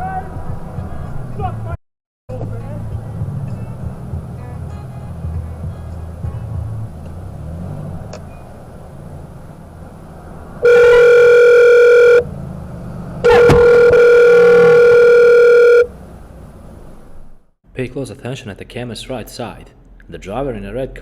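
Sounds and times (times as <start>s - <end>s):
long steady beeping tones: 10.6s - 12.2s, 13.2s - 15.9s.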